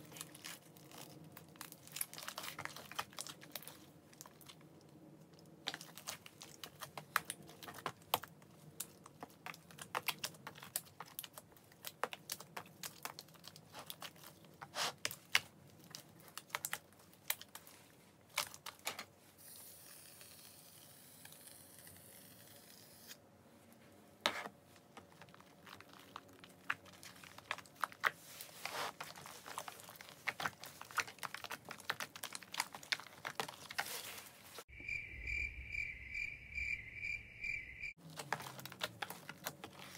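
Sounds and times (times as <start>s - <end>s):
slime squelching and popping: 0.0s - 18.8s, 25.0s - 33.9s, 38.0s - 39.9s.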